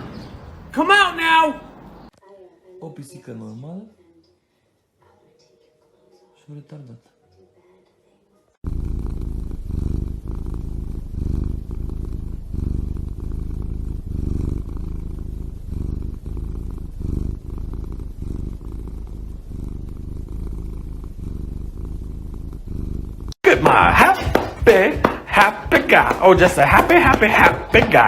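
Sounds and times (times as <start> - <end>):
cat purring: 7.0 - 28.0.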